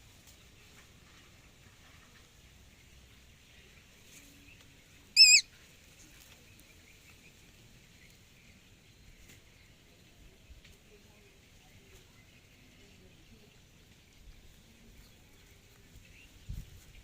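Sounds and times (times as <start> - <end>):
bird call: 5.2 - 5.5.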